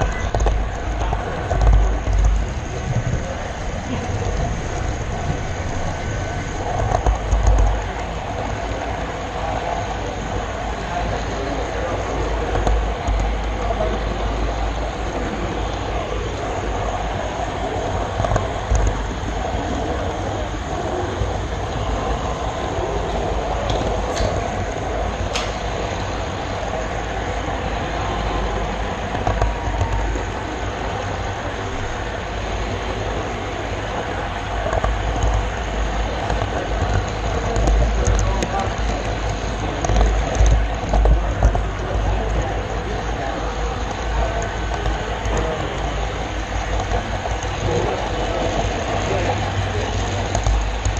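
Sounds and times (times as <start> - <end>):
model train rumbling on track: 0.0 - 50.9.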